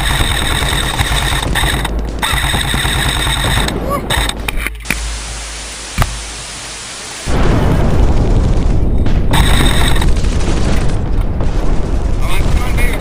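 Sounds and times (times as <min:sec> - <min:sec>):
rough low rumble: 0:00.0 - 0:06.4.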